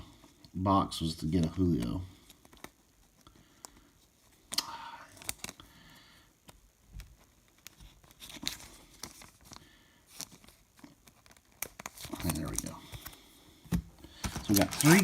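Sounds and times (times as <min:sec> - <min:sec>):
foil wrapper crinkling and tearing: 0:07.4 - 0:13.2, 0:14.1 - 0:15.0.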